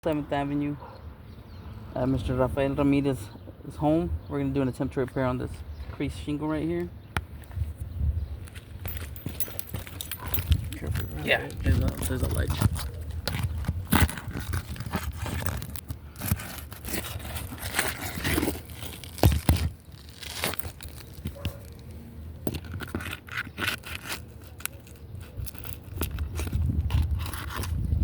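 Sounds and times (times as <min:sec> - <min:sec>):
scraping on roof shingles: 0:12.4 - 0:21.9.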